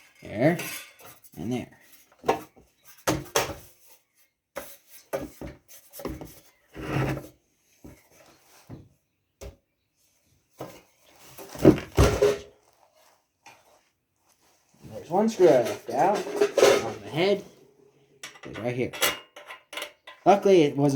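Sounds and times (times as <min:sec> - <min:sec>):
metal scraping and rubbing: 0:15.0 - 0:17.6
metal parts clicking and knocking: 0:18.2 - 0:20.3.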